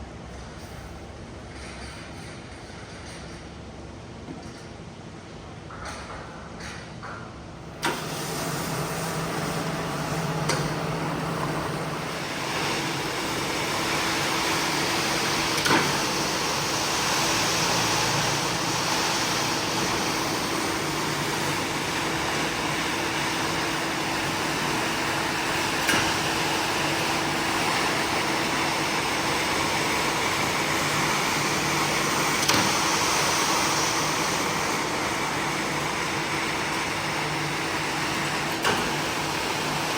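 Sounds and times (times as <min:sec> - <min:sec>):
carpet cleaning machine running: 0:07.8 - 0:39.9.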